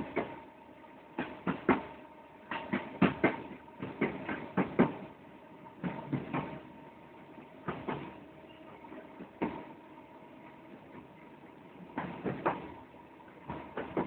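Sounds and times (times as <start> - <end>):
steady train hum: 0.0 - 14.0
wheels clacking over rail joints: 1.1 - 5.1, 5.8 - 6.7, 7.6 - 9.8, 11.8 - 14.0.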